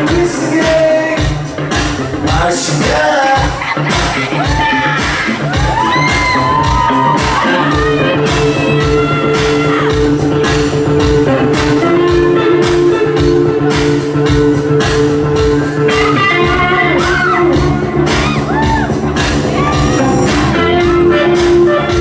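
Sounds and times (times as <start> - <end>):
drums on a steady beat: 0.0 - 22.0
electric guitar: 0.0 - 22.0
person singing: 2.2 - 10.6, 15.6 - 22.0.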